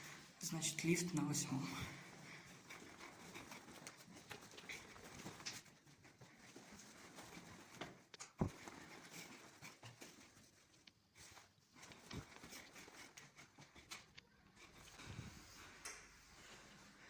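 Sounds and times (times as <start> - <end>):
faint clicks and rustles: 0.0 - 17.0.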